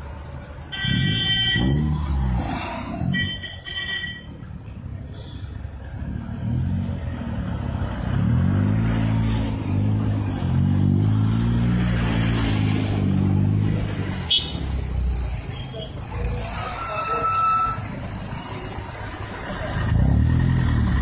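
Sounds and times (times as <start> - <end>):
car engine and exhaust passing: 4.4 - 16.5, 18.0 - 21.0.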